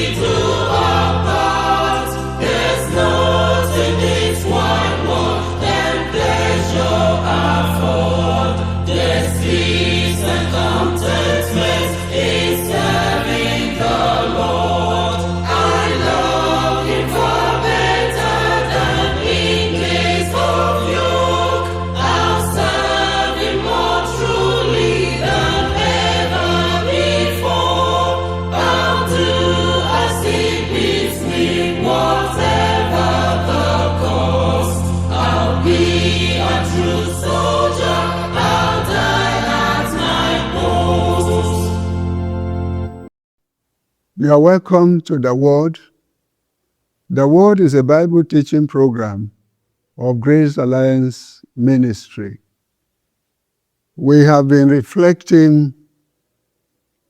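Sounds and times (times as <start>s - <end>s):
gospel choir singing: 0.0s - 43.1s.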